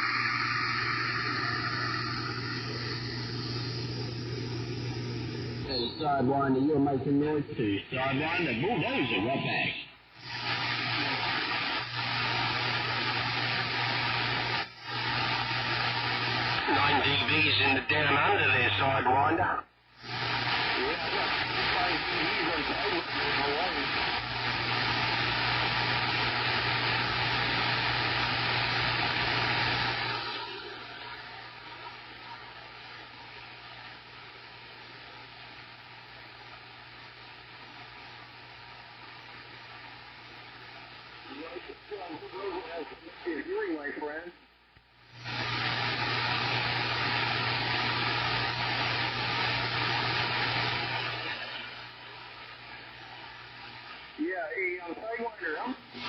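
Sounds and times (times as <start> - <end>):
low hum: 0.0 - 7.6
radio static hiss: 0.0 - 56.0
steady low hum: 0.0 - 56.0.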